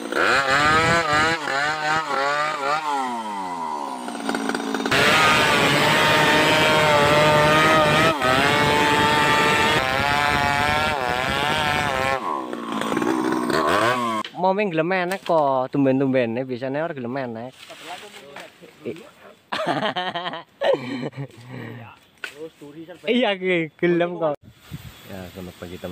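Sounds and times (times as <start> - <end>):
chainsaw engine revving: 0.0 - 14.3.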